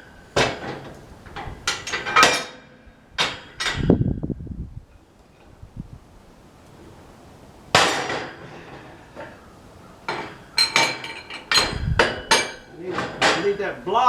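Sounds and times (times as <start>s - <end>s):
ringing metal clanks: 0.0s - 4.0s, 10.1s - 13.8s.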